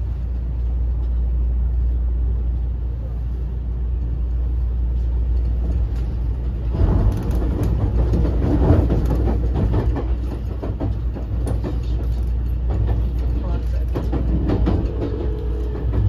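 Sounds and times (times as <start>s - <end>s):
wheels rumbling on rail: 0.0s - 16.0s
wheels rattling and clattering: 5.1s - 16.0s.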